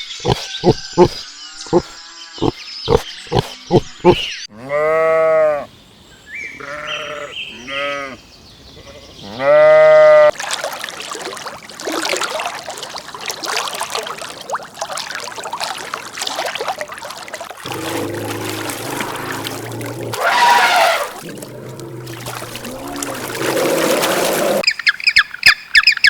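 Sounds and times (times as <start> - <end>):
sheep bleating: 4.5 - 5.6, 6.6 - 8.2.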